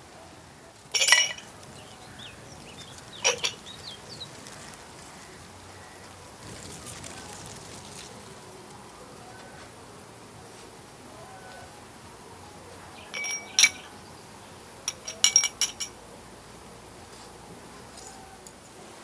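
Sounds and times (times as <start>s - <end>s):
dishes clinking: 1.0s - 2.2s, 3.1s - 3.8s, 13.0s - 14.1s, 14.9s - 16.0s.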